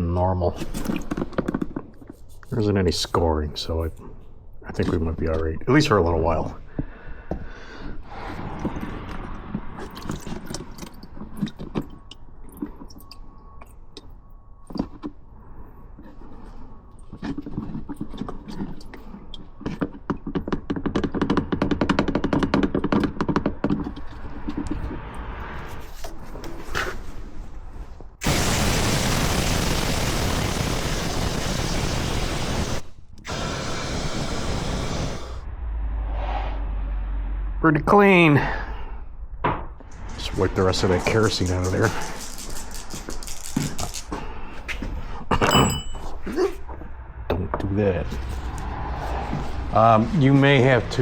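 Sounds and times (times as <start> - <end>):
compressed air blow gun hissing: 28.2 - 35.4.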